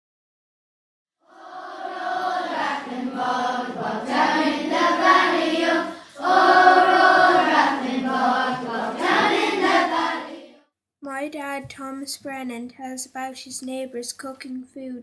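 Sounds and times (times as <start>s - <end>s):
children's choir singing: 1.2s - 10.6s.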